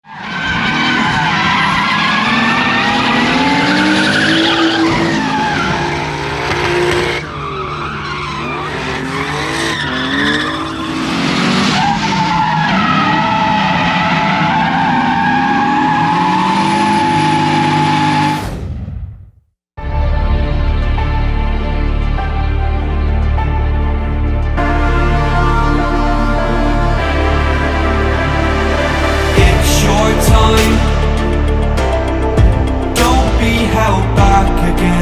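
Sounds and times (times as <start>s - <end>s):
tyres skidding: 0.1s - 18.4s
car engine revving: 0.5s - 18.4s.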